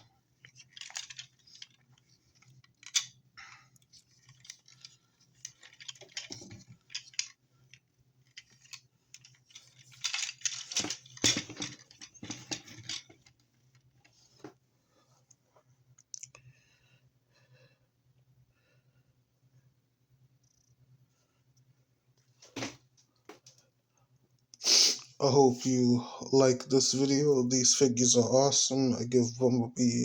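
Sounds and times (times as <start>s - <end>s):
plastic toy parts clicking and rattling: 0.0s - 13.9s
faint low hum: 0.0s - 30.0s.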